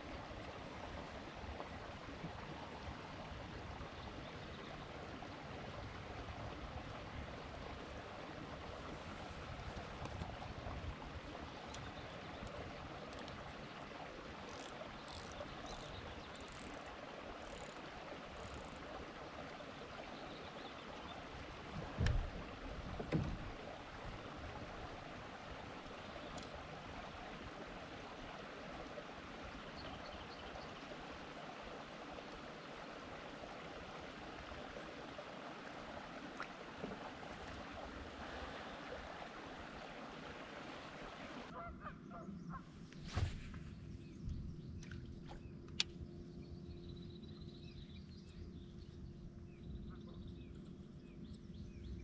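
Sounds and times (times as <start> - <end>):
water around a kayak: 0.0 - 52.0
faint ticks: 11.6 - 13.4, 14.4 - 18.8, 26.2 - 26.6.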